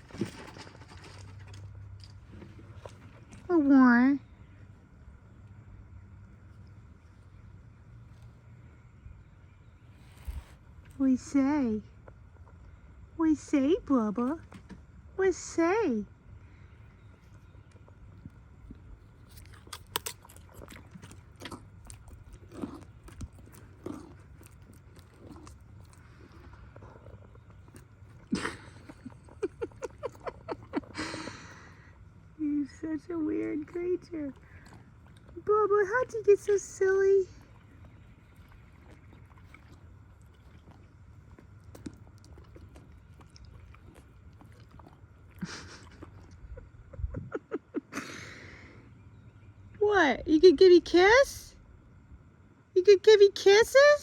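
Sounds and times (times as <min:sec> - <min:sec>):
donkey crunching cracker: 0:00.0 - 0:03.5, 0:17.1 - 0:32.0, 0:33.0 - 0:46.9.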